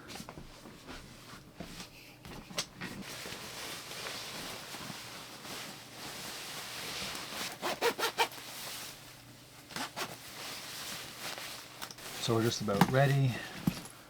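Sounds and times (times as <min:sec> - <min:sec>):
clothing rustling: 0:00.0 - 0:14.0
zip being worked: 0:07.4 - 0:08.4.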